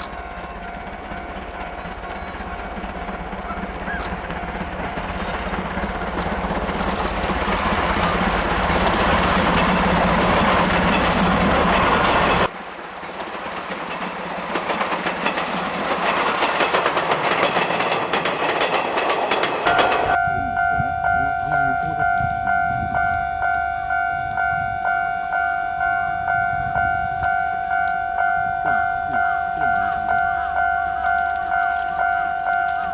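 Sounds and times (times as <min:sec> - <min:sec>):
level crossing alarm ringing: 0:00.0 - 0:12.5, 0:19.7 - 0:32.9
rail clatter: 0:00.0 - 0:32.9
steam train passing: 0:00.0 - 0:32.9.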